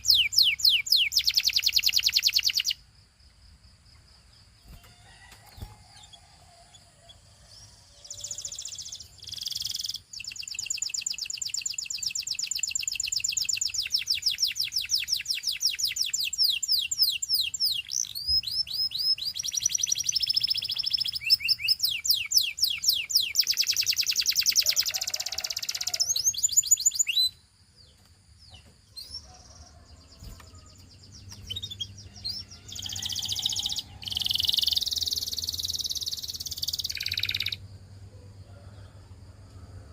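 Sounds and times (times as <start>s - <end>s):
canary singing trills: 0.0s - 2.8s, 4.6s - 37.7s.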